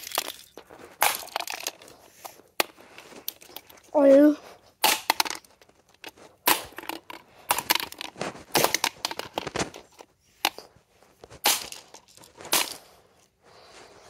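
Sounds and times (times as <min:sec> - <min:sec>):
plastic cracking and clattering: 0:04.8 - 0:10.6.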